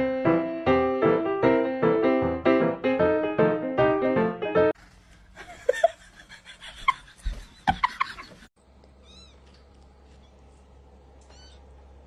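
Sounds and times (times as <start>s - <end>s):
cat meowing: 9.0s - 9.5s, 11.2s - 11.7s.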